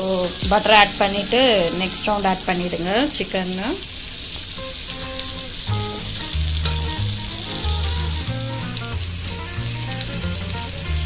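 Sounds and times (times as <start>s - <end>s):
chicken sizzling on a griddle: 0.0s - 11.0s
background music with bass line: 5.7s - 11.0s.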